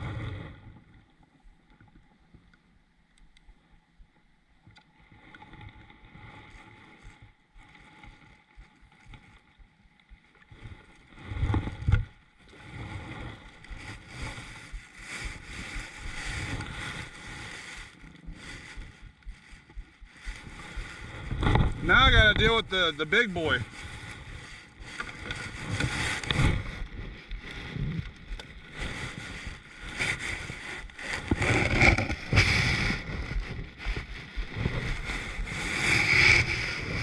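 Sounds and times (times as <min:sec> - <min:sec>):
rustling and knocks on kayak: 0:13.2 - 0:22.6, 0:24.8 - 0:37.0.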